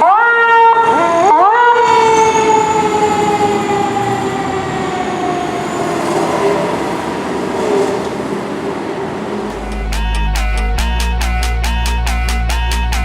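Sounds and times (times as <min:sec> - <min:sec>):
fire truck siren winding down: 0:00.0 - 0:10.3.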